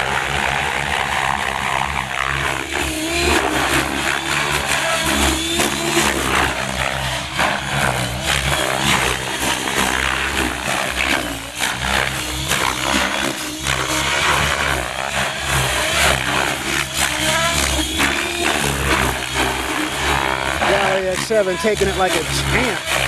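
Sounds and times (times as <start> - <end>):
loud blade noise: 0.0 - 23.0
model helicopter rotor whine: 0.0 - 23.0.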